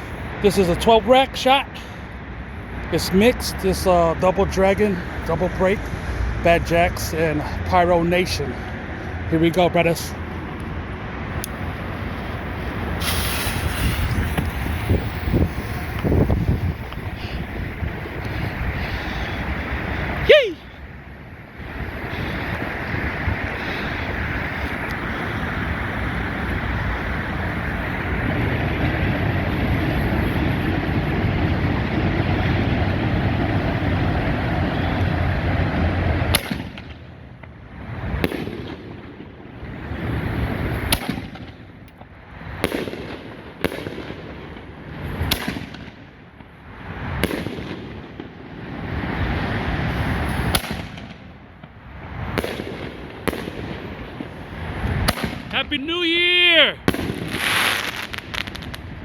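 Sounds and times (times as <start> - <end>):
continuous rushing noise: 0.0 - 57.4
firework hiss: 11.4 - 20.6, 48.7 - 51.4, 52.0 - 59.0
firework bangs: 11.5 - 18.2, 22.4 - 59.0.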